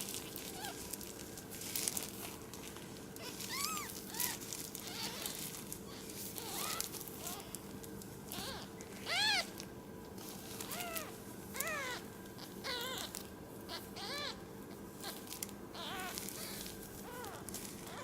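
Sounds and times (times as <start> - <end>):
kittens mewing: 3.2 - 7.7, 8.3 - 9.6, 10.5 - 18.0.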